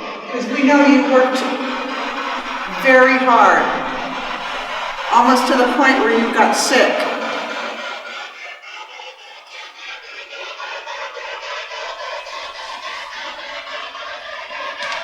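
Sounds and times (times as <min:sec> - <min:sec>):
pulsing radio static: 0:00.1 - 0:08.3.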